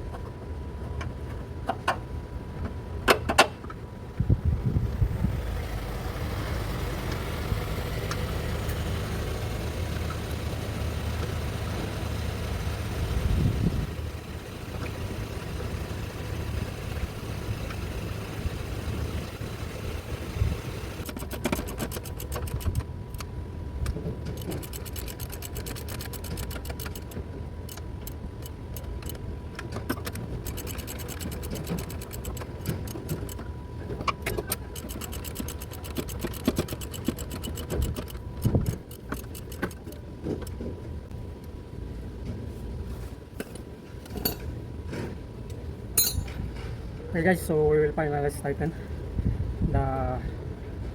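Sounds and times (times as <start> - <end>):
steady low hum: 3.8 - 21.1
ratchet clicking: 24.4 - 29.2, 30.4 - 33.4, 34.5 - 39.9.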